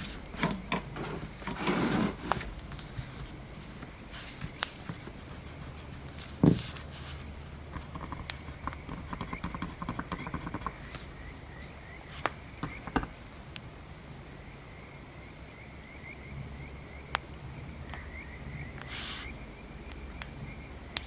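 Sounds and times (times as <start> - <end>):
fire crackling: 2.3 - 8.9
small ticks: 7.7 - 11.2.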